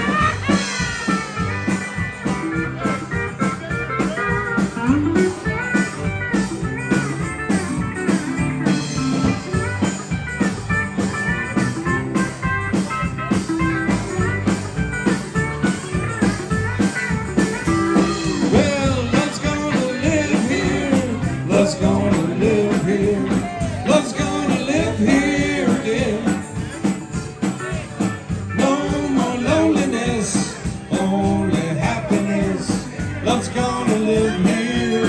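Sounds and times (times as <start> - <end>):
lead guitar solo: 0.0 - 20.5
bass: 0.0 - 35.0
steady drum beat: 0.0 - 35.0.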